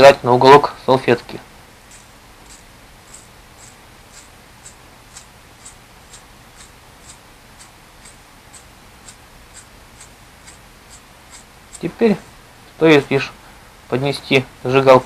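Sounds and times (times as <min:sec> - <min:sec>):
lighter spark wheel scratching: 0:01.9 - 0:12.0.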